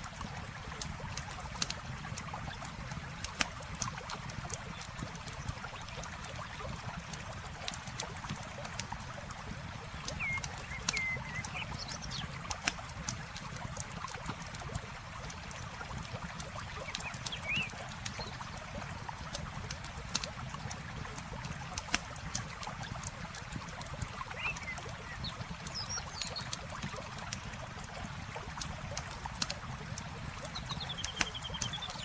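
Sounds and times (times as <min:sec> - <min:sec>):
campfire crackling: 0:00.0 - 0:31.7
birds chirping: 0:10.0 - 0:12.5, 0:16.7 - 0:18.6, 0:24.2 - 0:26.6, 0:30.4 - 0:32.0.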